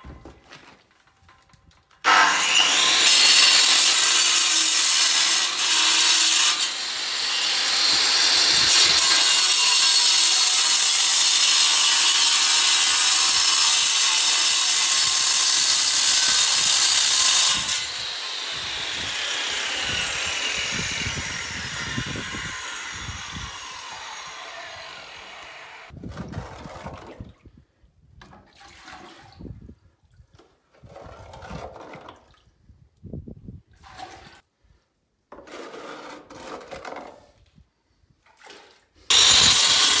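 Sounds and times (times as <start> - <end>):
power tool running: 2.1 - 4.3, 15.6 - 25.9, 39.1 - 40.0
scrapes and knocks: 35.3 - 37.4.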